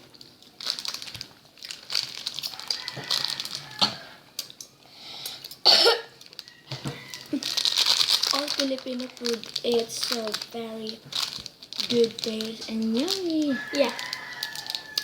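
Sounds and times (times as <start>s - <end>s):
plastic snack bag crinkling: 0.0s - 15.0s
loud cough: 5.6s - 6.1s.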